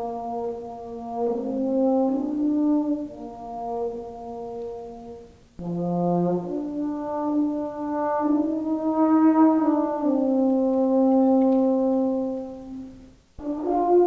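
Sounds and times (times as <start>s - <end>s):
euphonium folk melody: 0.0s - 14.0s.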